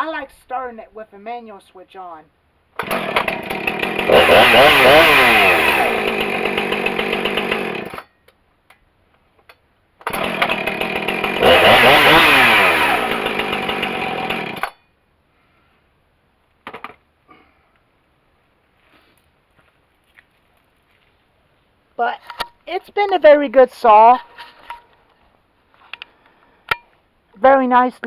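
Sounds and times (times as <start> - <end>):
chainsaw engine revving: 2.8 - 8.1, 10.0 - 14.8.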